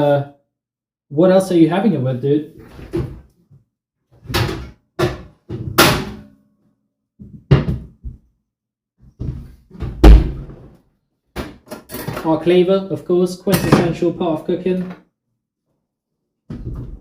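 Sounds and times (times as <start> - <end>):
kitchen knocks and thuds: 4.2 - 6.2, 7.2 - 8.2, 9.2 - 10.7, 13.5 - 14.1.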